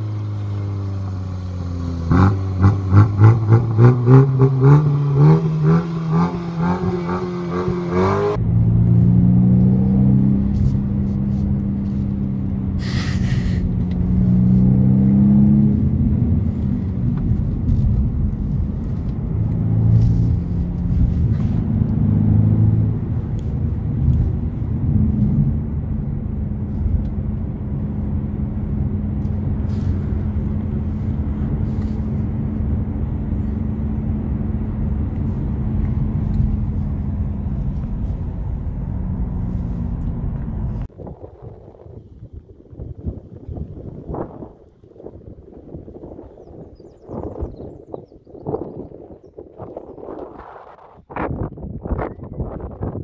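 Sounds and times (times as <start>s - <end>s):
car engine and exhaust: 0.0s - 53.0s
tyre and road noise: 0.0s - 53.0s
brief hiss: 12.8s - 13.6s.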